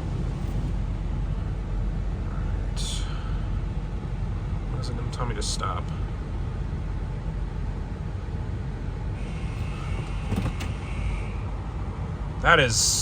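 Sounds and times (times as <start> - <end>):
car engine idling: 0.0 - 1.7, 9.0 - 12.0.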